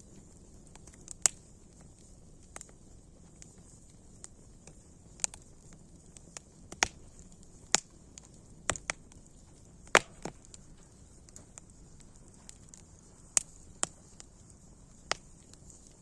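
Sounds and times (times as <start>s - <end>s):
campfire crackling and popping: 0.0s - 16.0s
faint steady hiss: 0.0s - 16.0s.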